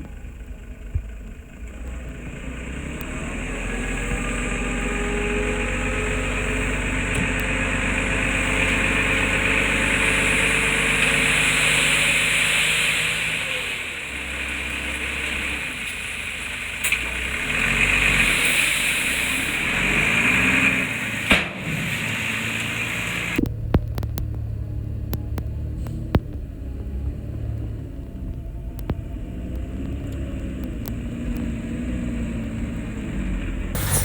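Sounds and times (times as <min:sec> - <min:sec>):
heavy diesel engine running: 0:00.0 - 0:18.3
sharp knock: 0:33.8 - 0:34.0
sharp metallic clanks: 0:33.8 - 0:34.0.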